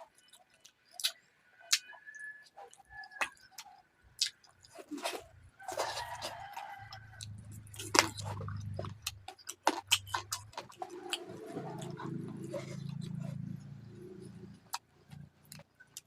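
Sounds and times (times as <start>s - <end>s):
wet chewing and lip smacks: 0.1s - 16.0s
sharp clicks and crunches: 3.3s - 13.5s, 14.7s - 16.0s.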